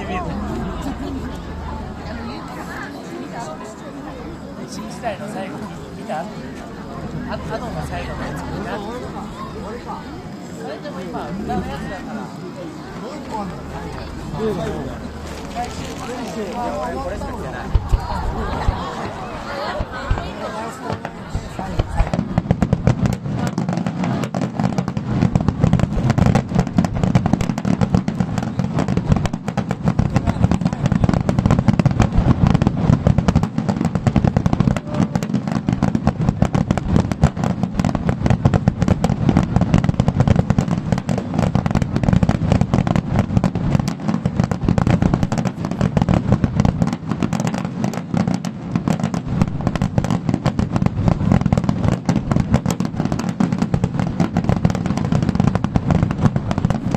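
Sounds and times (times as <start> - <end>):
fireworks booms and crackle: 0.0 - 56.9.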